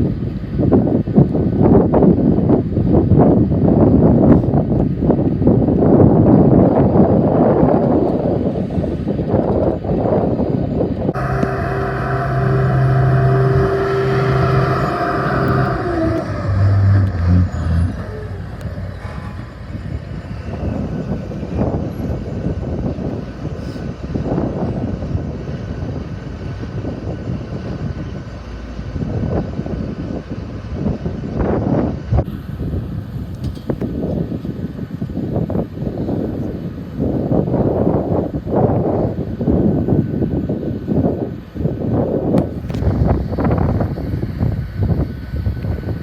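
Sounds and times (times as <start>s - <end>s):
motor hum: 11.2s - 19.8s.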